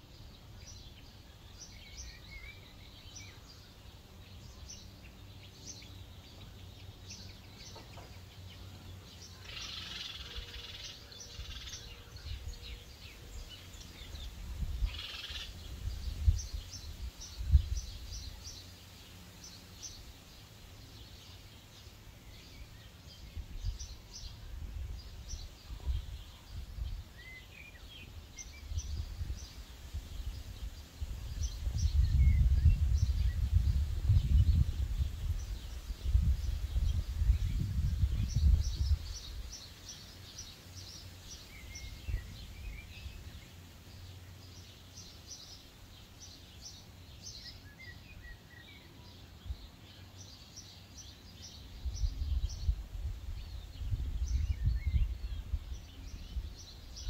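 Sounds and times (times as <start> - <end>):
small birds chirping: 0.0 - 57.0
wind buffeting microphone: 13.4 - 18.2, 27.9 - 39.6, 51.7 - 57.0.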